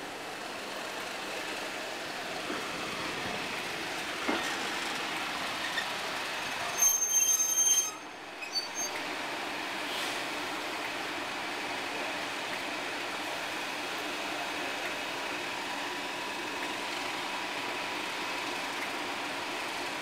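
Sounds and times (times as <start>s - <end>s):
train rolling over rails: 0.0s - 20.0s
high wheel squeal: 5.6s - 5.9s, 6.6s - 9.0s.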